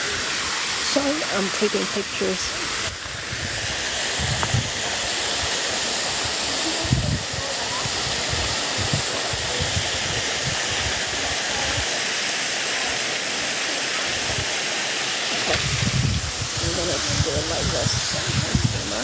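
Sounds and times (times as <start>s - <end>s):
waterfall rushing: 0.0s - 19.0s
wind bumps on microphone: 3.0s - 4.9s, 6.8s - 11.0s, 15.4s - 19.0s.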